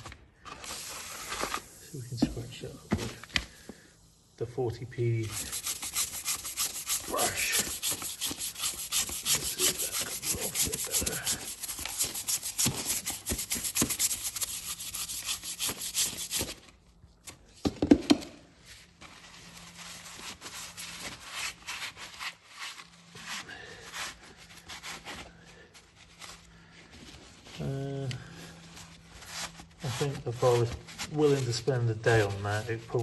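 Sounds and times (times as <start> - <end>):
hand brush scrubbing: 5.2 - 16.6, 28.8 - 33.0.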